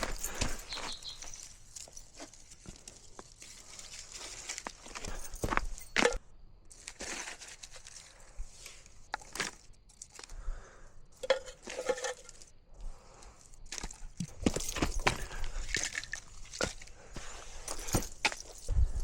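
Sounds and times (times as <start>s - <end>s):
dry crunching and crinkling: 0.0s - 10.7s, 11.6s - 18.7s.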